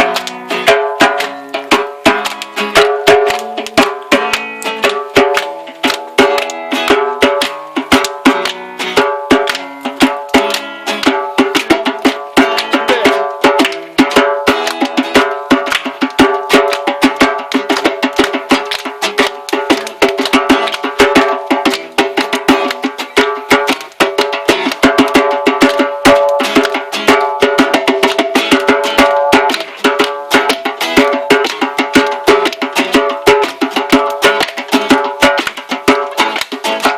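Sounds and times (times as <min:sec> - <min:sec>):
acoustic guitar strumming: 0:00.0 - 0:36.9
djembe playing: 0:00.0 - 0:36.9.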